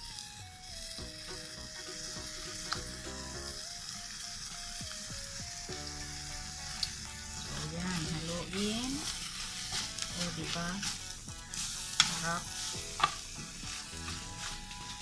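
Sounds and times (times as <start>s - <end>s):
food sizzling in a pan: 0.0s - 15.0s
spoon sharp ticks: 2.6s - 2.9s, 6.8s - 7.0s.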